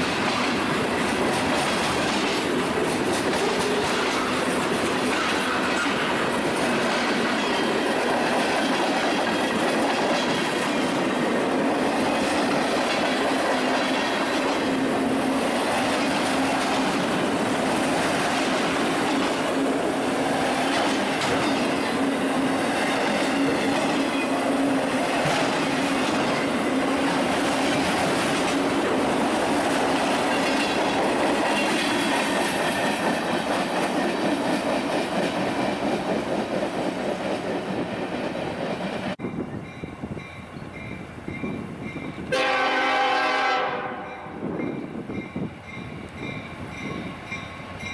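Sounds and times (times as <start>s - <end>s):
train cars rolling on rails: 0.0s - 47.9s.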